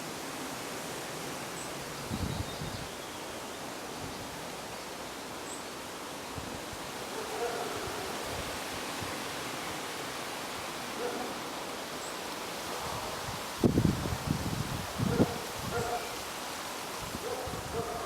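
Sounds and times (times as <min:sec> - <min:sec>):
wind buffeting microphone: 0:02.1 - 0:02.9, 0:12.8 - 0:16.1, 0:17.0 - 0:18.0
wind blowing: 0:12.6 - 0:18.0.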